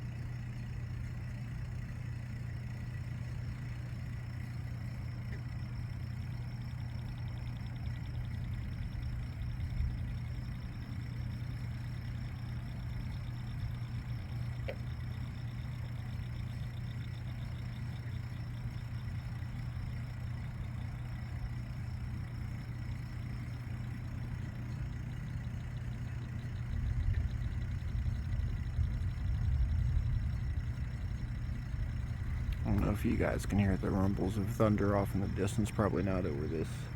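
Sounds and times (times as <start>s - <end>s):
pump humming: 0.0s - 36.9s
deep low rumble: 26.6s - 36.9s.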